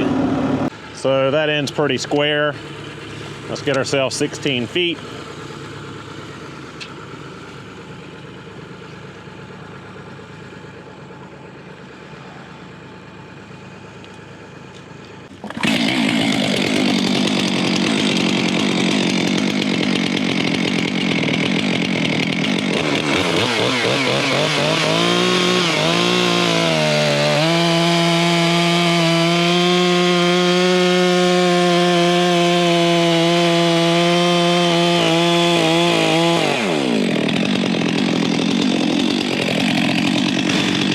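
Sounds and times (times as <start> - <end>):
chainsaw cutting log: 0.0 - 12.7, 14.0 - 40.9
engine idling quietly: 0.0 - 15.5.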